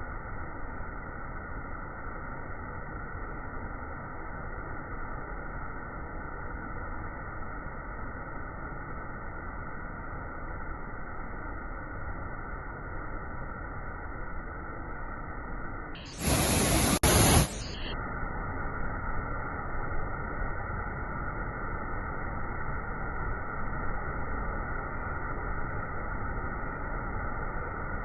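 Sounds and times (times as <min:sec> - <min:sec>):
loud bright hiss: 0:16.0 - 0:17.9
waterfall rushing: 0:16.1 - 0:17.8.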